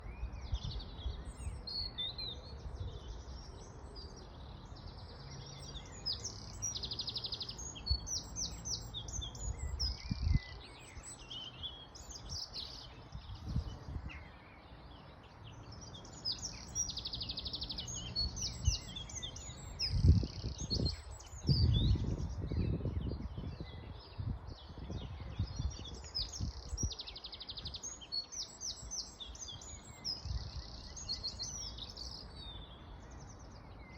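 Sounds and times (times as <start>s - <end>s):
songbirds singing: 0.0s - 33.9s.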